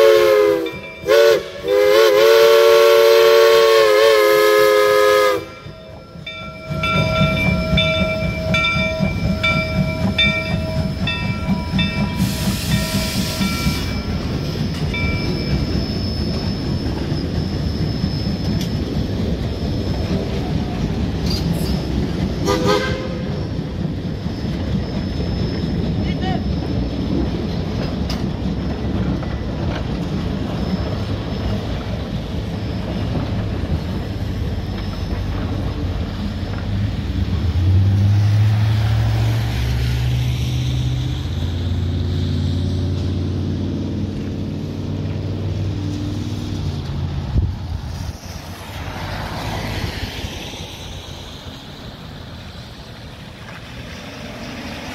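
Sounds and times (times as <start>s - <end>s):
train coaches rumbling and clattering: 0.0s - 54.9s
car tyres hissing on wet road: 48.1s - 54.9s.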